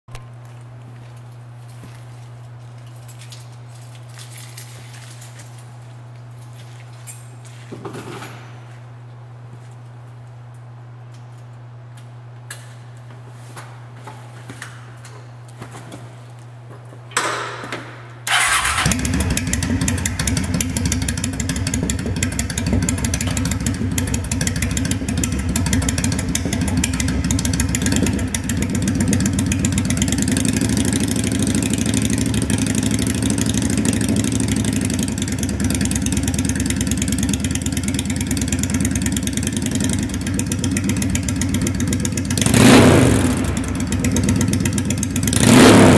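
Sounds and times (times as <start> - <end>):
motorcycle engine idling: 18.3 - 45.4
motorcycle engine cranking: 18.3 - 45.9.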